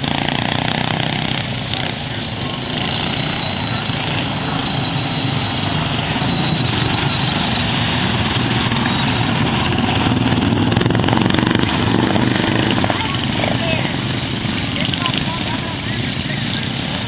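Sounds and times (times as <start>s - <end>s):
racing lawn mower engines: 0.0s - 17.0s.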